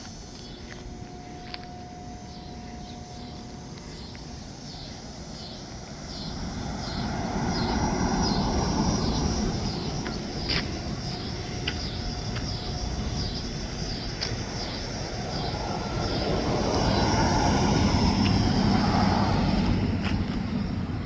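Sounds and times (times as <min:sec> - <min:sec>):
train rumbling past: 0:00.0 - 0:21.0.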